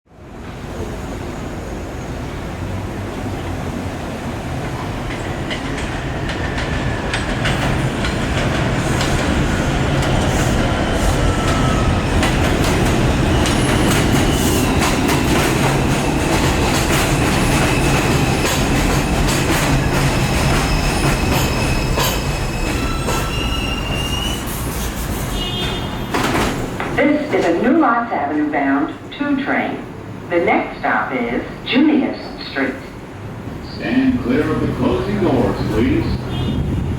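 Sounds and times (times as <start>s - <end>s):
train rumble: 0.1s - 36.9s
wheel and brake squeal: 20.5s - 26.2s.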